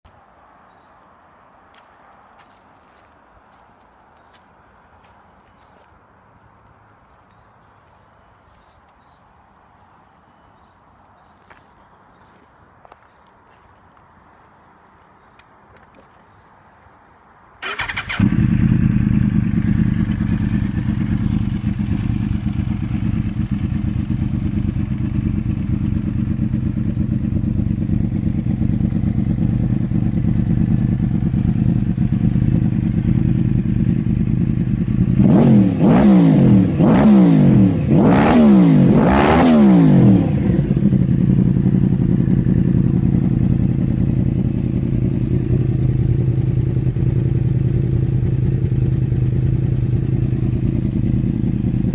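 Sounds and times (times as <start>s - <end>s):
motorcycle engine idling: 17.6s - 35.9s, 40.1s - 51.9s
motorcycle engine revving: 17.6s - 51.9s.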